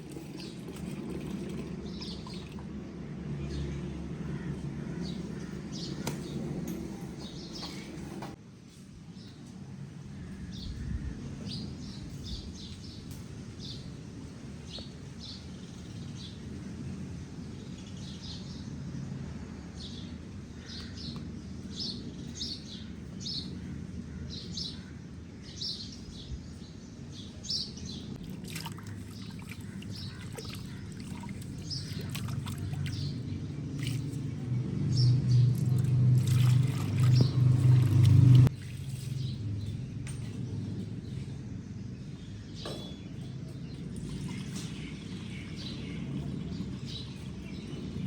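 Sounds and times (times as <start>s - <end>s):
birds chirping: 3.4s - 8.4s, 20.6s - 48.0s
low background rumble: 28.0s - 38.6s.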